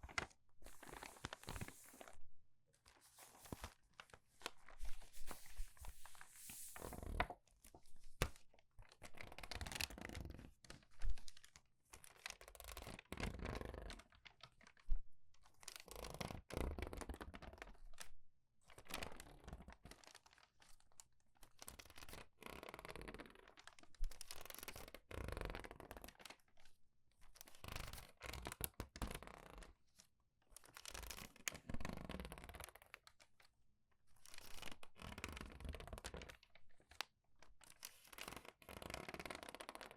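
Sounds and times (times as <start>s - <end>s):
paper crinkling: 0.0s - 2.2s, 2.8s - 7.4s.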